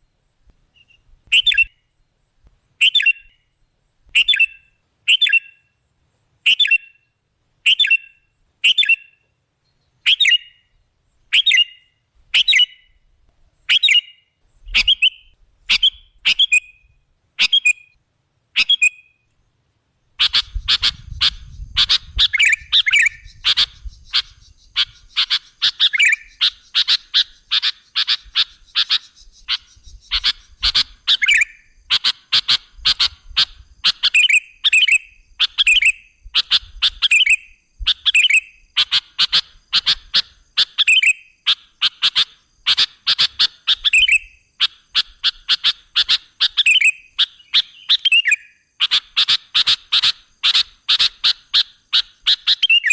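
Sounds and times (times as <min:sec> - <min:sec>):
bird calling: 0:00.7 - 0:02.0, 0:02.8 - 0:05.8, 0:06.4 - 0:13.0, 0:13.6 - 0:19.3, 0:20.2 - 0:52.9
bird chattering calls: 0:00.8 - 0:01.8, 0:11.3 - 0:13.0, 0:13.7 - 0:16.8, 0:17.4 - 0:19.2, 0:20.2 - 0:52.9.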